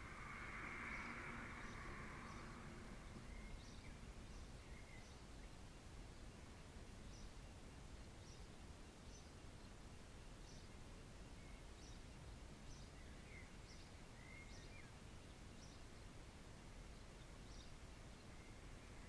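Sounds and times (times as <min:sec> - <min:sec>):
distant bird chirping: 0:00.0 - 0:07.4
outdoor background hiss: 0:00.0 - 0:19.0.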